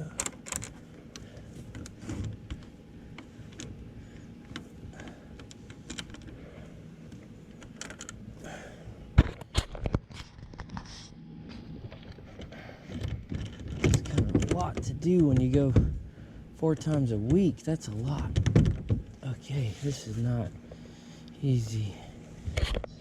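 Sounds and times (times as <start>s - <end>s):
seat frame clicks and rattles: 0.0s - 6.4s, 7.0s - 8.2s, 11.9s - 19.2s.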